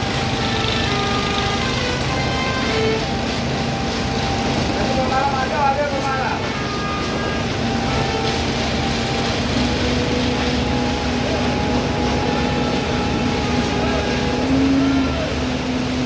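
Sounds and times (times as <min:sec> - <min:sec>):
diesel engine droning hum: 0:00.0 - 0:16.0.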